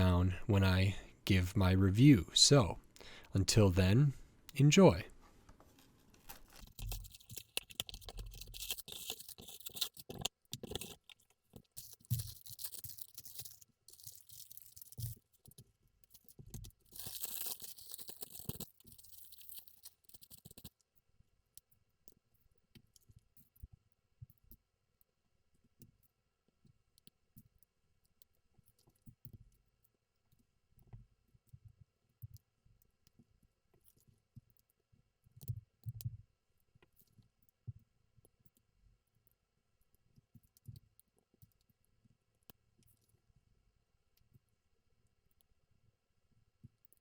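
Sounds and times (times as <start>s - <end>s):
crinkling plastic and cardboard: 5.1s - 20.8s
packaging tearing and rustling: 5.6s - 15.2s, 16.9s - 20.7s.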